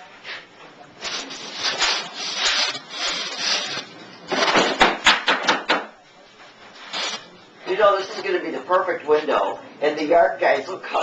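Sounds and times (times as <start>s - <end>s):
rubbing and scraping on window frame: 1.0s - 3.9s.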